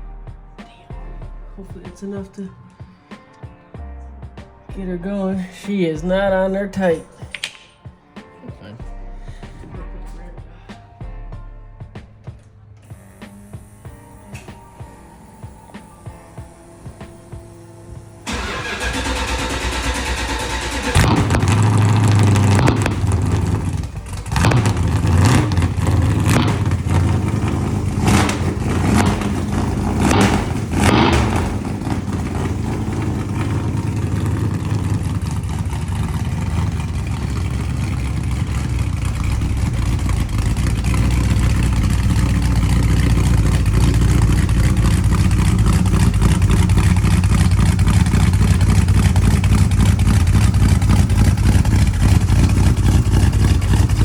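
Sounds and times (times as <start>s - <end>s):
car engine revving and idling: 16.6s - 54.0s.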